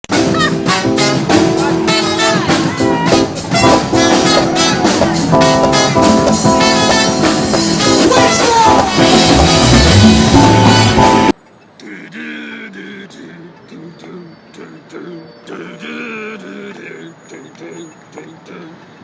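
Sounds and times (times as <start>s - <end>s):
band music with singing: 0.1s - 11.3s.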